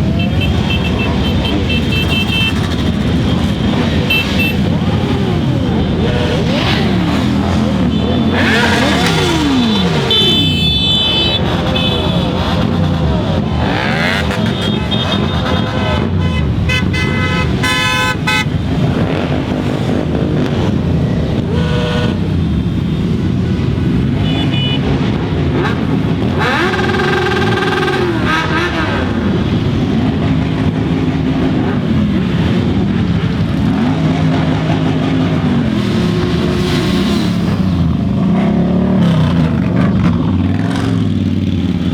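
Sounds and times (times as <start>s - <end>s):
horns honking: 0.0s - 20.5s, 23.8s - 32.6s
motorcycles passing and revving: 0.0s - 41.9s.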